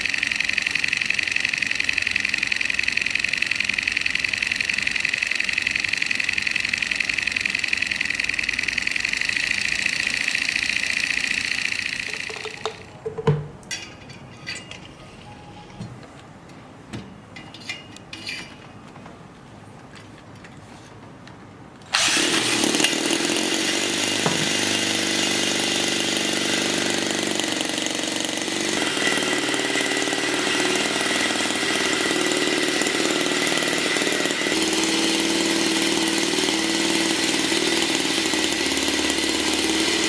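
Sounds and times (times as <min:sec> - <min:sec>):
model engine buzzing whine: 0:00.0 - 0:12.9, 0:22.0 - 0:40.0.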